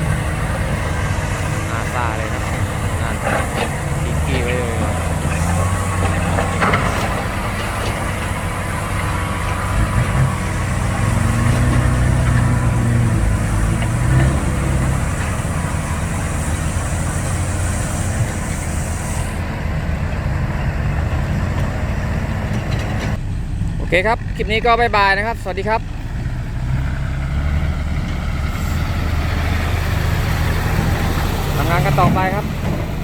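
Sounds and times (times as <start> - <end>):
heavy diesel engine running: 0.0 - 33.0.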